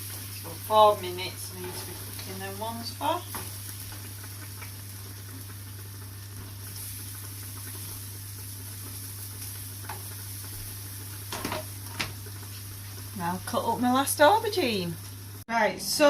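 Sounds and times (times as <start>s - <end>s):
vegetable slices sizzling in a pan: 0.0s - 16.0s.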